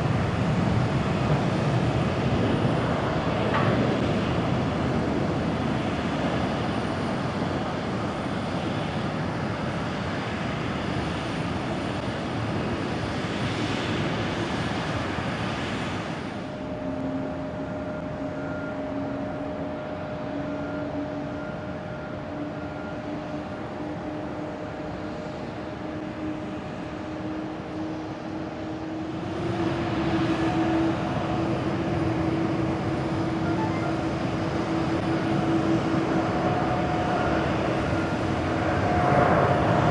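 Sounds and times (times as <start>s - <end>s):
jet engine noise: 0.0s - 39.9s
engine hum rising in pitch: 16.6s - 39.9s.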